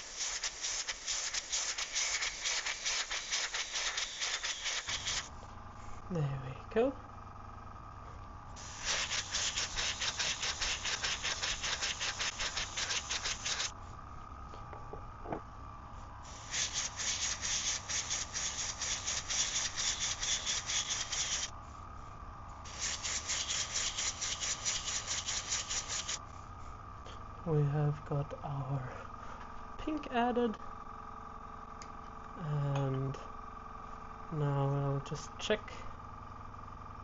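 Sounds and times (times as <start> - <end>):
airbrush spraying pulsing hiss: 0.0 - 5.3, 8.6 - 13.9, 16.2 - 21.8, 22.6 - 26.6.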